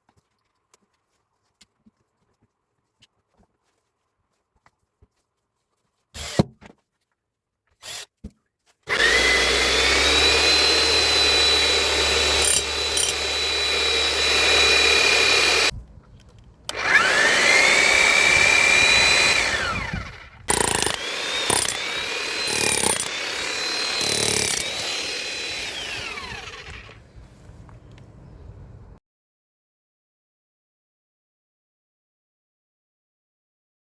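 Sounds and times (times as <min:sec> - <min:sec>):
demolition hammer motor whining: 0:08.9 - 0:27.1.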